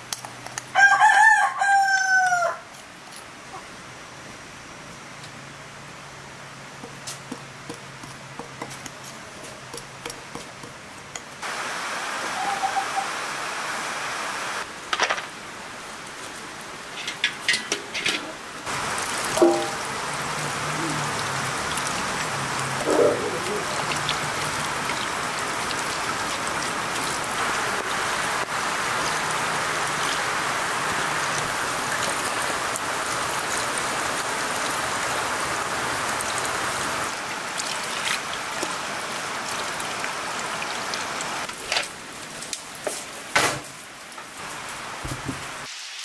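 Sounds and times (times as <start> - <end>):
steady rain falling: 11.4 - 17.5, 18.3 - 46.0.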